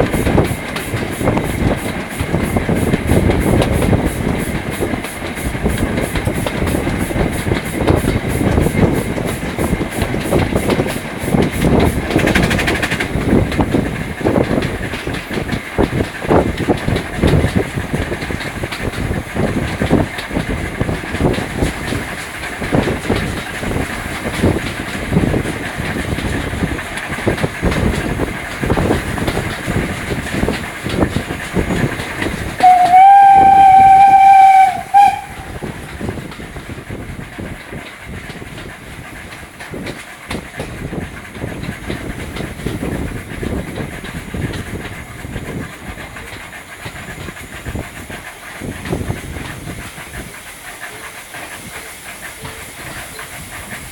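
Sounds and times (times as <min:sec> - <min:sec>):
rattle of wheels and coaches: 0:00.0 - 0:53.9
steam locomotive beat: 0:00.0 - 0:53.9
steam whistle blast: 0:32.6 - 0:35.6.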